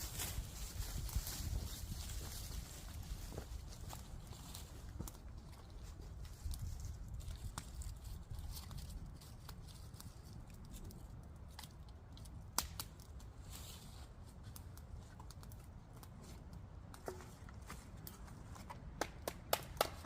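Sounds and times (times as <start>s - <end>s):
campfire crackling: 0.0s - 20.0s
sharp wood snaps: 11.4s - 13.2s, 18.8s - 20.0s.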